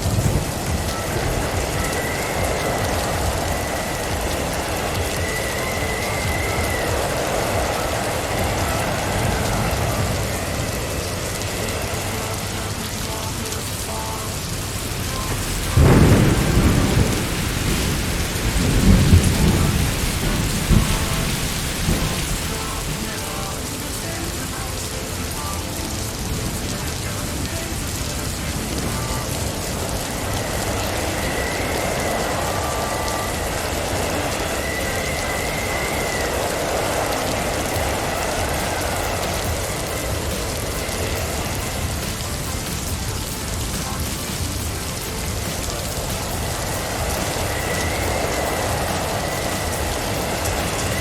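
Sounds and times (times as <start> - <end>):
blizzard wind and snow rushing: 0.0 - 51.0.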